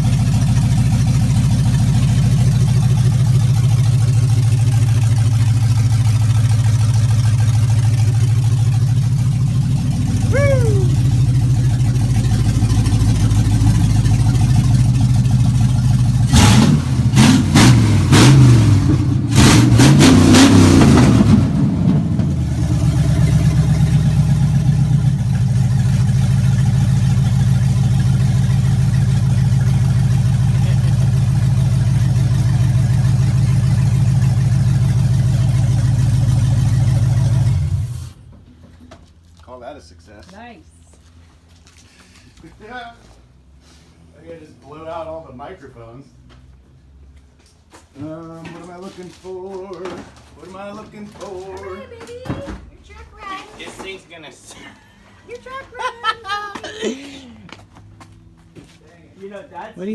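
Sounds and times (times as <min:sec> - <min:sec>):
engine revving: 0:00.0 - 0:38.2
sharp exhaust cracks: 0:00.0 - 0:38.3
engine idling: 0:00.0 - 0:39.9.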